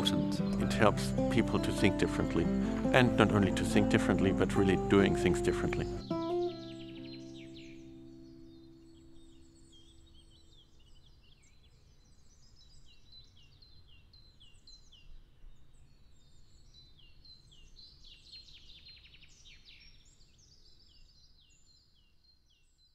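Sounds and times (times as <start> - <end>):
bird trill: 0.0 - 15.2
birds chirping: 0.0 - 22.7.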